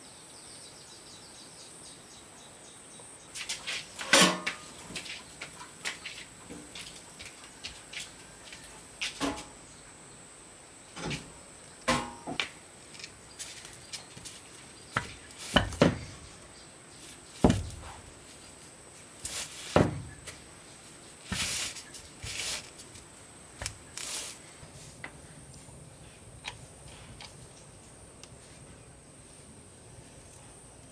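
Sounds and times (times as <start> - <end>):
tools and parts knocking: 14.9 - 16.2.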